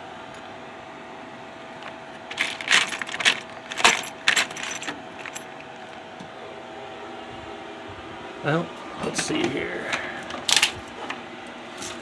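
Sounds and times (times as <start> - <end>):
faint constant whine: 0.0 - 12.0
steady hum: 0.0 - 12.0
metallic jangling and clinking: 1.8 - 5.7, 11.8 - 12.0.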